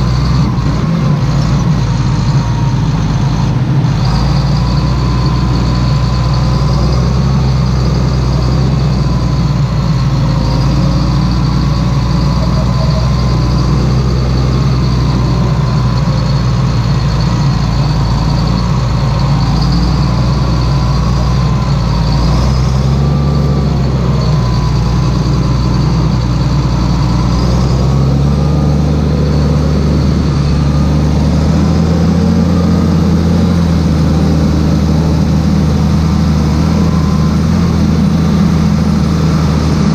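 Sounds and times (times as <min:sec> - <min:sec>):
faint whine: 0:00.0 - 0:39.9
tractor diesel engine running: 0:00.0 - 0:39.9.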